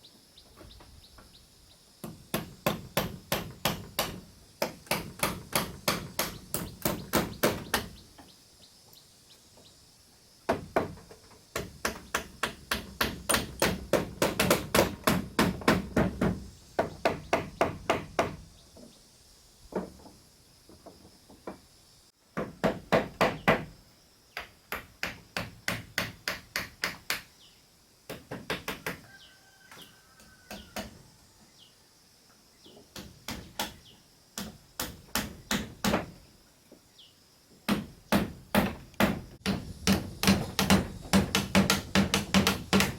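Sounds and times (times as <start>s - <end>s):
hammering: 2.0s - 8.0s, 11.6s - 18.4s, 37.7s - 42.9s
faint bird chirps: 29.0s - 32.9s.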